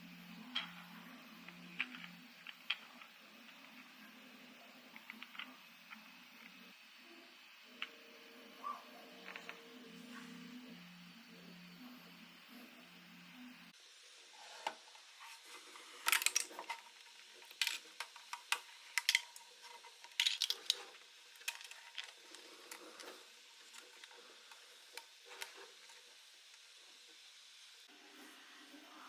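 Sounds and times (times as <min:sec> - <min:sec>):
plastic parts clicking and clattering: 0:00.3 - 0:06.7, 0:09.0 - 0:10.2, 0:15.8 - 0:26.1.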